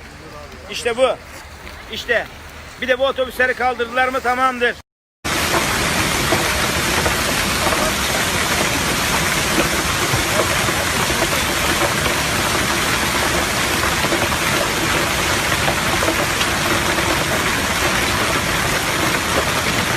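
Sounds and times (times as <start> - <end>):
heavy rain falling: 5.3 - 19.9.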